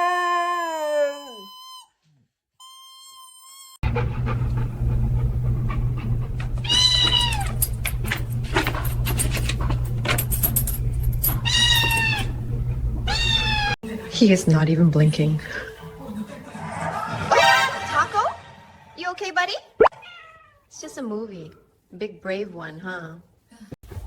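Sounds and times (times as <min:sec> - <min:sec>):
dog howling: 0:00.0 - 0:01.6, 0:03.9 - 0:08.1, 0:11.4 - 0:13.8
steady low hum: 0:03.8 - 0:14.0
cat meowing: 0:06.6 - 0:07.6, 0:11.4 - 0:12.4, 0:13.1 - 0:13.8, 0:19.9 - 0:20.7.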